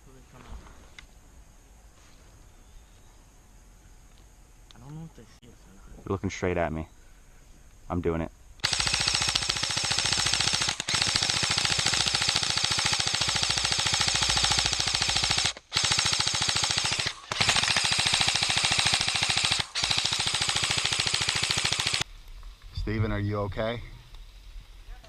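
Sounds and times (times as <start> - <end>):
airsoft gun rapid firing: 8.6 - 22.0.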